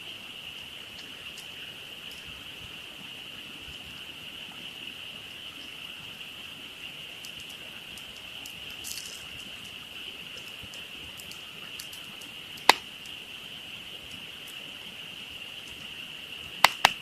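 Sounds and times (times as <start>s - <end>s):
campfire wood crackling: 0.0s - 4.4s, 5.1s - 17.0s
frogs chorus: 0.0s - 17.0s.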